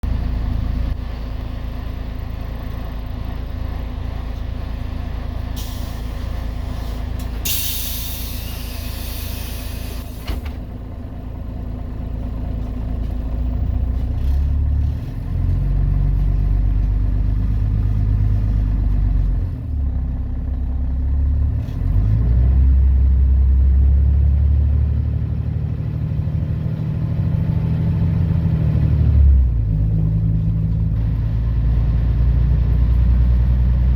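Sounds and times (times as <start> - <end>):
bus accelerating: 0.0 - 33.9
bus diesel engine: 0.0 - 33.9
compressed air hisses: 7.4 - 10.2.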